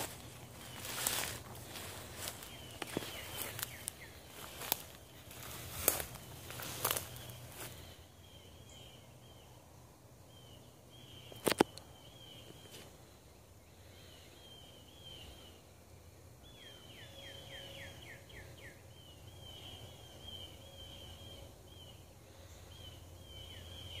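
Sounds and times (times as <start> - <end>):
bird chirping: 0.0 - 9.6, 16.4 - 24.0
low background hum: 0.0 - 24.0.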